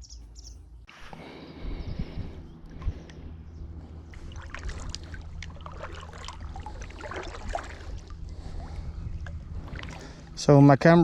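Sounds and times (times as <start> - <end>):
kayak paddle dipping into water: 4.1 - 10.3
water dripping: 4.2 - 8.2.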